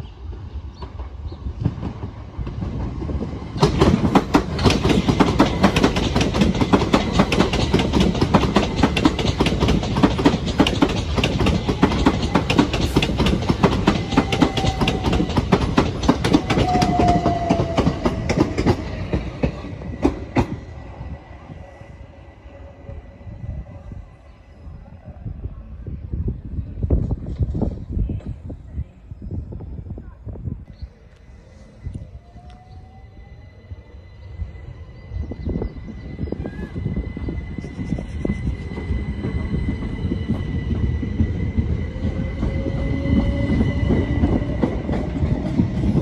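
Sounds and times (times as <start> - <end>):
train wheels clattering over joints: 1.6 - 20.6.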